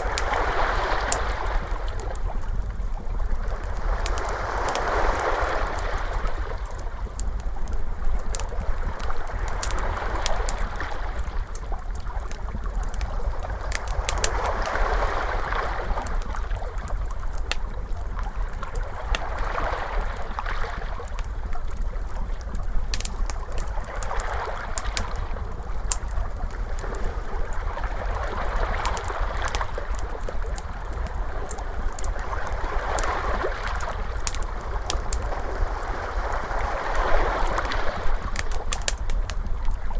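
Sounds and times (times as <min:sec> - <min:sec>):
ocean waves washing in: 0:00.0 - 0:02.3, 0:03.3 - 0:06.8, 0:13.0 - 0:16.7, 0:23.8 - 0:39.0
wood fire crackling: 0:00.0 - 0:15.0, 0:15.6 - 0:39.9.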